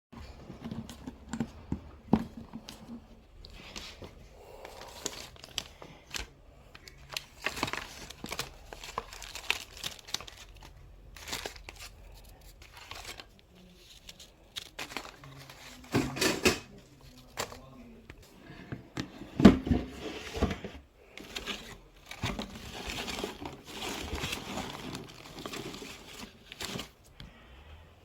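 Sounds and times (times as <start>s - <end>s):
paper crinkling and tearing: 3.5s - 16.0s, 21.0s - 27.1s.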